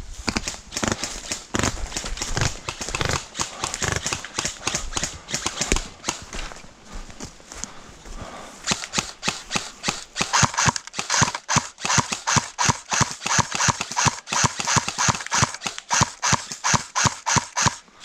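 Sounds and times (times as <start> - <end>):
airsoft gun firing rapid shots: 0.2 - 6.3, 8.7 - 17.9.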